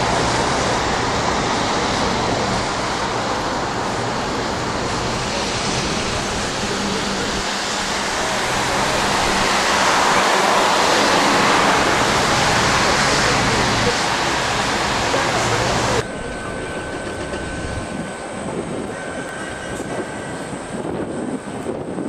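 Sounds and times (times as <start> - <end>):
floodwater rushing: 0.0 - 16.2.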